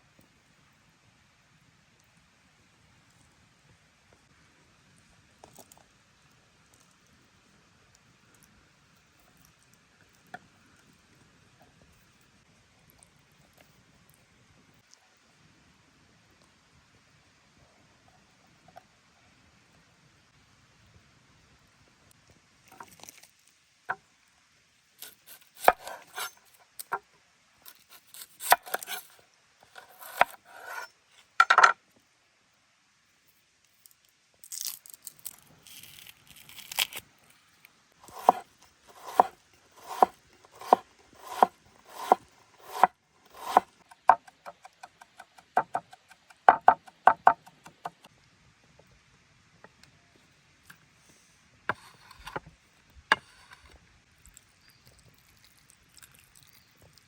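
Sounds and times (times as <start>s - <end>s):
knife chopping on wooden board: 25.0s - 26.3s, 27.7s - 29.0s, 29.8s - 31.7s, 38.0s - 48.1s.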